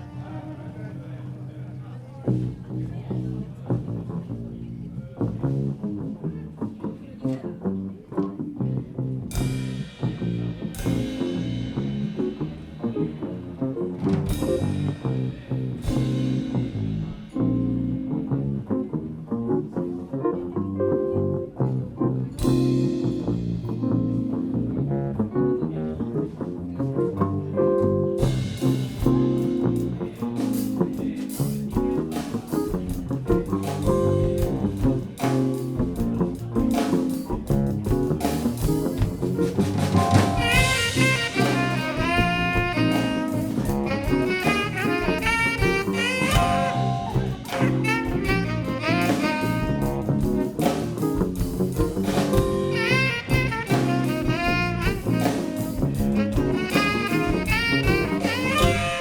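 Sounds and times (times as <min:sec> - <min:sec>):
saxophone melody: 0:00.0 - 0:01.1, 0:39.9 - 0:50.6, 0:52.3 - 0:59.0
jazz band playing: 0:00.0 - 0:59.0.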